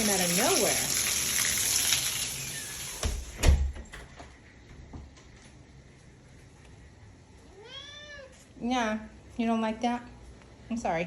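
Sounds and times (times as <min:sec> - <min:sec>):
heavy rain hissing: 0:00.0 - 0:03.3
front door shutting thumps: 0:03.0 - 0:04.3.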